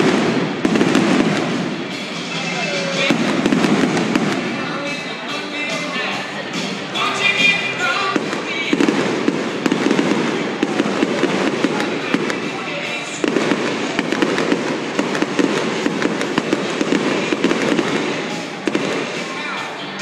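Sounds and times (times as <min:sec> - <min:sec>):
fireworks bangs: 0:00.0 - 0:06.0, 0:07.3 - 0:20.0.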